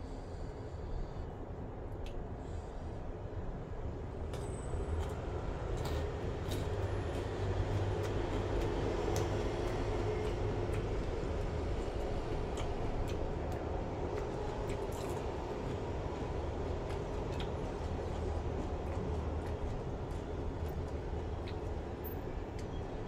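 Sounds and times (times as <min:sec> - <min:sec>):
crunchy chewing: 0:07.7 - 0:20.3.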